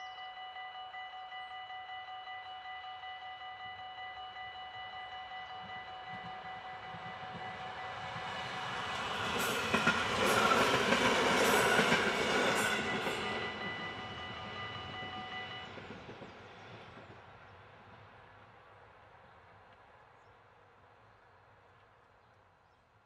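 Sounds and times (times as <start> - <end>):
level crossing bells ringing: 0.0 - 8.2
passenger train passing: 0.0 - 21.8.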